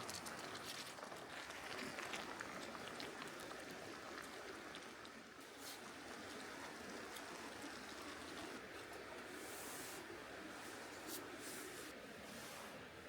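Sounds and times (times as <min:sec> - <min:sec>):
light ticks and crackles: 0:00.0 - 0:09.3
stream flowing: 0:00.0 - 0:13.0.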